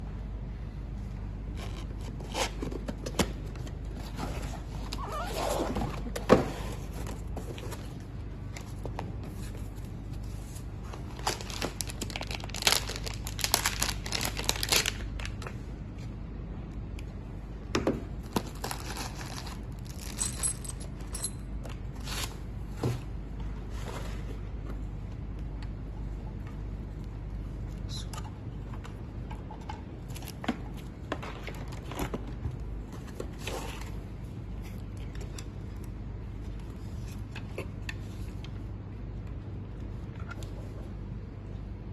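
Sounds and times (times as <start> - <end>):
steady low hum: 0.0 - 41.9
wrapping crinkling and tearing: 11.0 - 15.5, 18.3 - 20.6.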